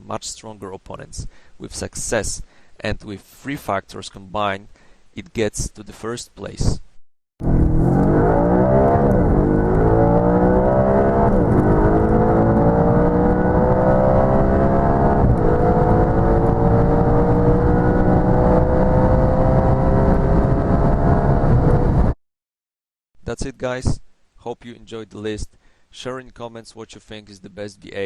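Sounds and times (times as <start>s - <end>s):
car engine accelerating: 7.4s - 22.2s.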